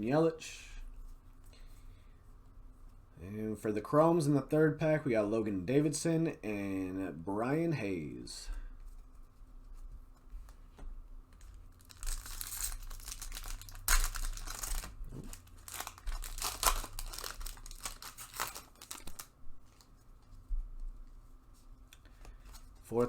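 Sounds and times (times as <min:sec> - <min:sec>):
wrapper tearing and crinkling: 0:11.7 - 0:19.9.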